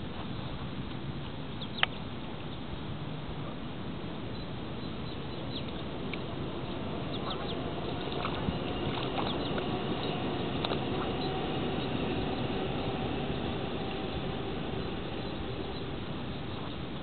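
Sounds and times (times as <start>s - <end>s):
steady background hiss: 0.0s - 17.0s
birds chirping: 4.3s - 17.0s.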